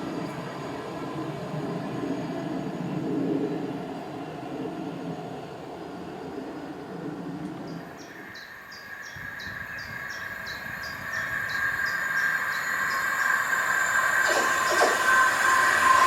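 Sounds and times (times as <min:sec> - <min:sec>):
train rails whining: 0:00.0 - 0:16.0.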